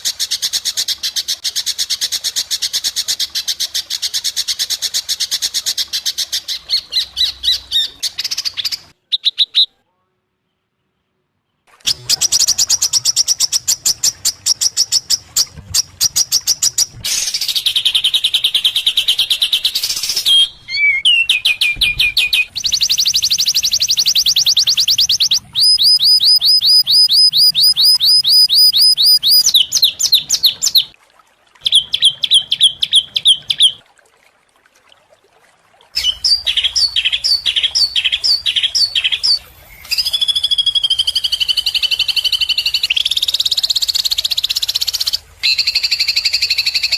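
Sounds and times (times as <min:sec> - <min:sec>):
songbirds trilling and chattering: 0:10.5 - 0:30.9.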